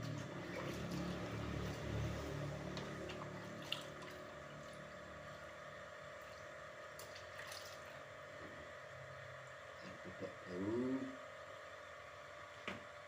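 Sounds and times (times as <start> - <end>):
steady low hum: 0.0 - 13.0
water dripping and trickling: 2.7 - 5.0, 6.2 - 8.0.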